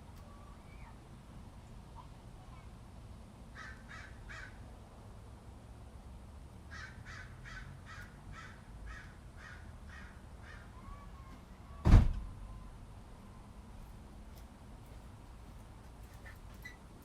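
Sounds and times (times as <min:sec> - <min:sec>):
bird cawing: 0:03.6 - 0:04.6, 0:06.7 - 0:11.8.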